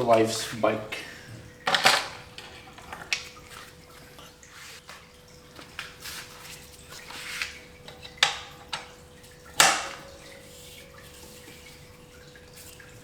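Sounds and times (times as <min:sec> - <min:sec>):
faint steady hum: 0:00.0 - 0:13.0
metal tools clinking: 0:01.7 - 0:03.2.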